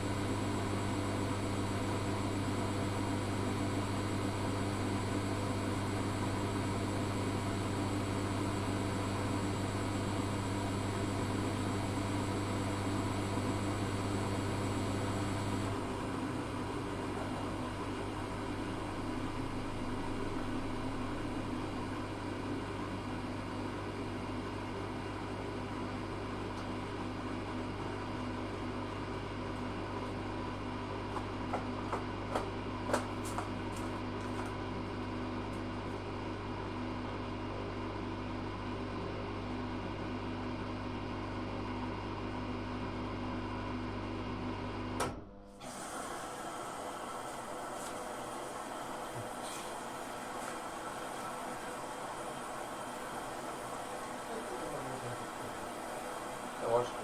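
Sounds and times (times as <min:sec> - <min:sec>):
washing machine humming: 0:00.0 - 0:57.0.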